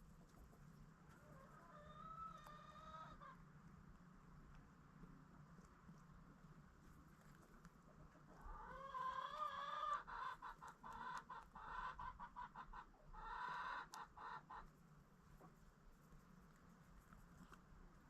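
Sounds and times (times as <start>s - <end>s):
chicken calling and clucking: 1.1s - 3.5s, 7.8s - 14.7s.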